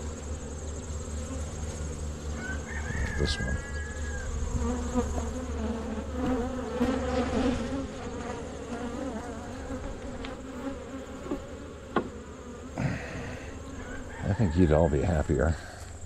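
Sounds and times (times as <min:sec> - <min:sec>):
honey bees buzzing: 0:00.0 - 0:16.0.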